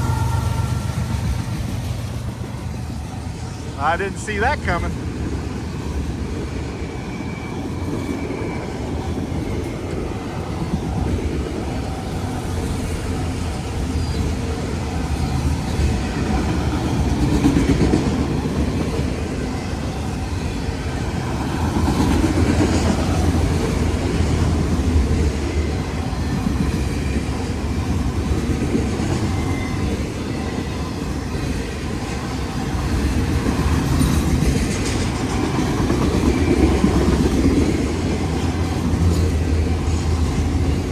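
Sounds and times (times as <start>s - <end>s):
freight train rumble: 0.0s - 40.9s
train wheel clicks on rails: 32.9s - 39.4s.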